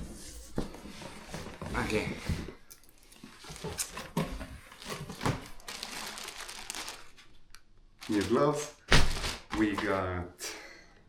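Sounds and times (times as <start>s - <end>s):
packaging rustling and crinkling: 3.2s - 10.0s.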